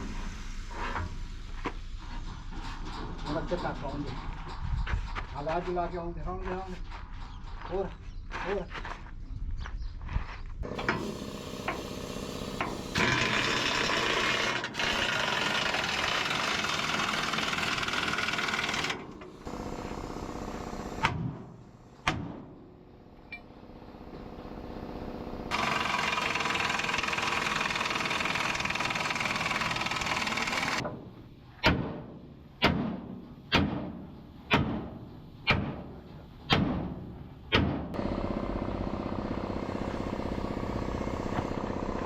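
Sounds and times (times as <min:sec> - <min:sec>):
engine-like hum: 0:10.6 - 0:15.0, 0:22.6 - 0:30.7, 0:37.9 - 0:42.0
steady machine noise: 0:10.6 - 0:21.0, 0:23.5 - 0:30.8, 0:38.0 - 0:42.0.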